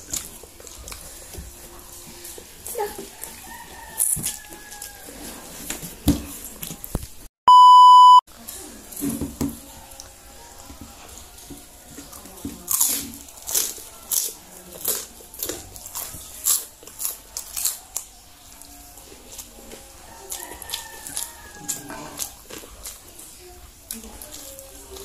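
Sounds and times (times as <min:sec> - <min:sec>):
chewing crunchy food: 0:00.0 - 0:07.2, 0:08.4 - 0:25.0
loud electronic beep: 0:07.5 - 0:08.2.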